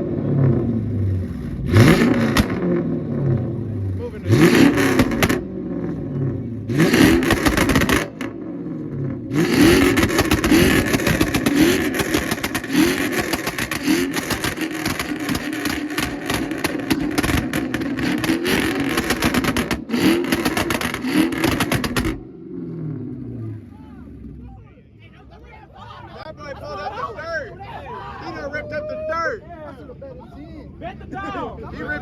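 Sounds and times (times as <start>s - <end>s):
exhaust popping: 0.0s - 24.4s
car engine revving: 0.0s - 24.6s.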